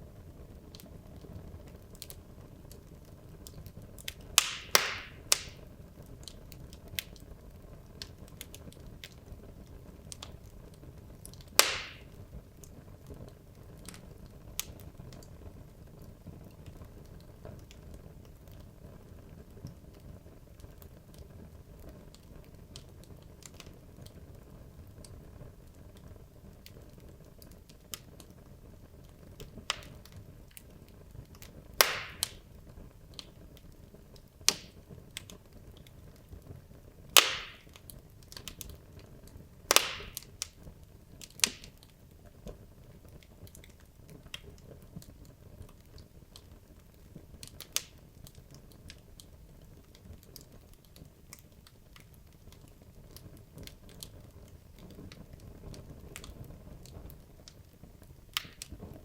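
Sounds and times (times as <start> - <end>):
loud sharp snaps of fire: 0.0 - 59.0
low hiss of fire: 0.0 - 59.0
wood fire crackling and popping: 0.0 - 59.0.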